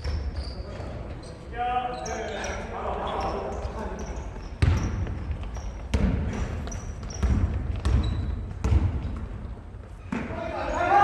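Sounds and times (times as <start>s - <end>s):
basketball bouncing on wooden floor: 4.6s - 9.5s.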